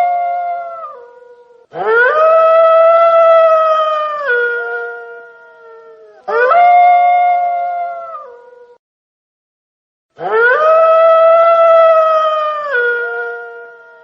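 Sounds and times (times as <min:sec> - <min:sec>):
wolf howling: 0:00.0 - 0:08.8, 0:10.2 - 0:14.0.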